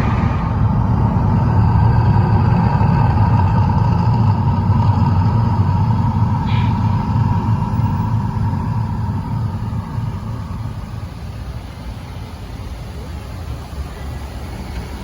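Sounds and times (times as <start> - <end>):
deep rumble: 0.0 - 12.4.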